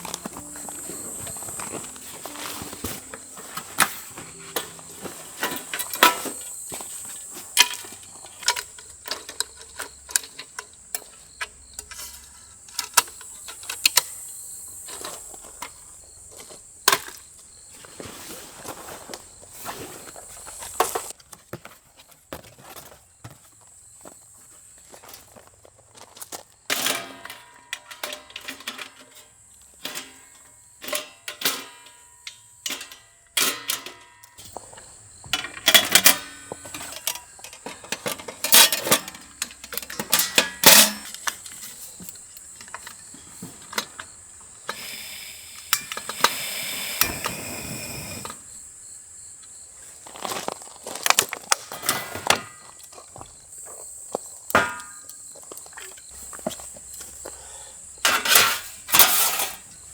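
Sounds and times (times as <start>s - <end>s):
objects knocking and rattling: 26.7s - 44.2s.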